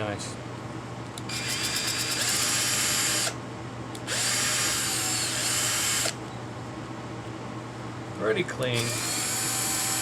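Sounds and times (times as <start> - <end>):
small electric drill running: 1.3 - 3.4, 4.0 - 6.2, 8.8 - 10.0.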